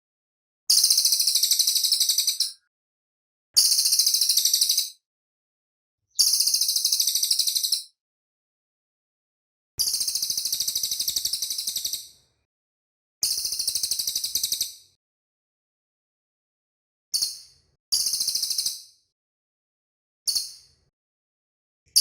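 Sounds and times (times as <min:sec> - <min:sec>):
bird trilling song: 0:00.7 - 0:02.7, 0:03.6 - 0:05.0, 0:06.2 - 0:08.0, 0:09.8 - 0:12.2, 0:13.3 - 0:14.8, 0:17.2 - 0:19.0.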